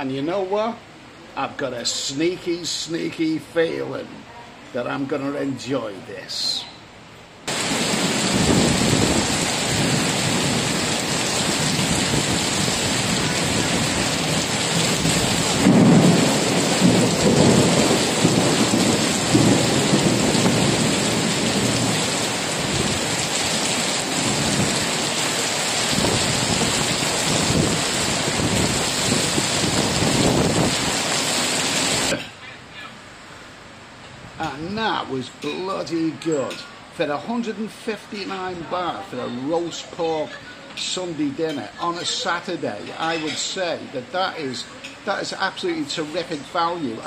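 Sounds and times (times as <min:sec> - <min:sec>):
heavy rain pouring: 0:07.4 - 0:32.2
thunder rumbling: 0:07.5 - 0:32.1.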